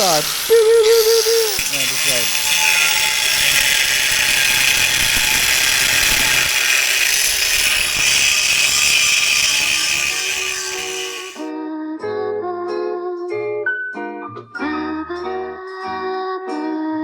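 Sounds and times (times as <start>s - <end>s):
power tool cutting metal: 0.0s - 11.5s.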